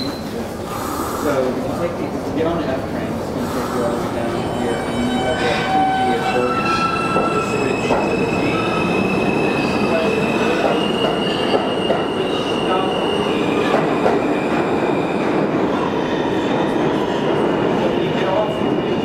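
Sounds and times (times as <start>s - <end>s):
train wheels rumbling on rails: 0.0s - 19.0s
high wheel squeals: 4.4s - 14.5s.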